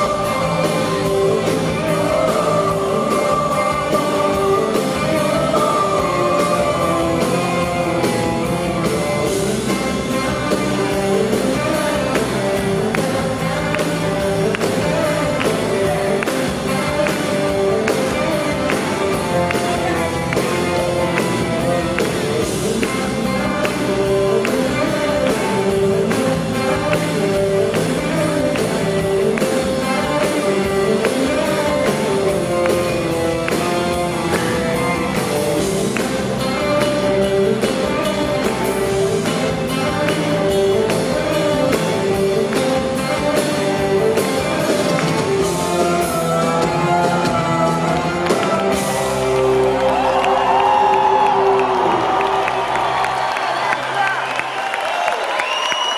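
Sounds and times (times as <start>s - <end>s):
live band music with singing: 0.0s - 55.9s.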